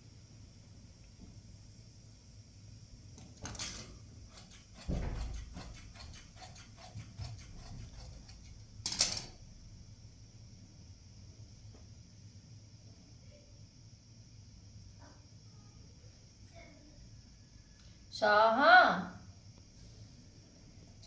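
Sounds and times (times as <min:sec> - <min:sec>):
dull thump: 0:04.8 - 0:05.6.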